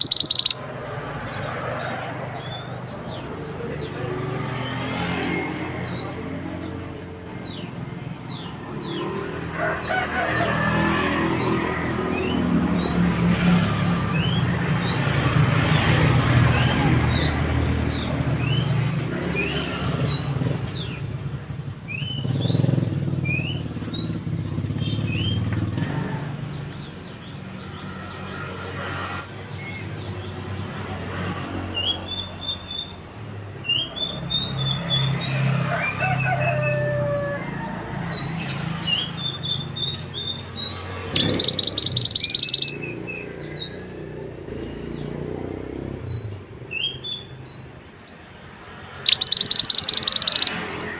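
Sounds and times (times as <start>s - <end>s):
fast buzzing bird notes: 0.0s - 0.6s, 41.0s - 42.8s, 49.0s - 50.9s
songbird chirping: 0.0s - 0.7s, 38.9s - 45.3s, 46.1s - 50.9s.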